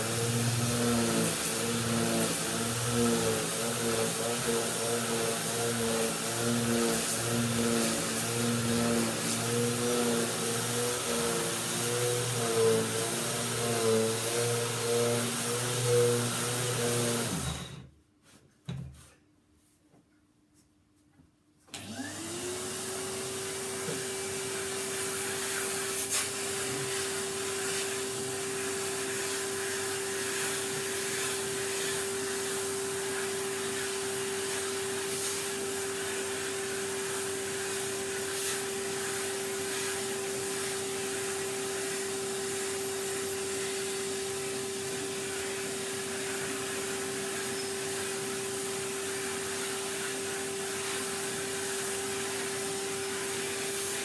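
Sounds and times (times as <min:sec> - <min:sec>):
vacuum cleaner motor whine: 0:00.0 - 0:17.9, 0:21.7 - 0:54.0.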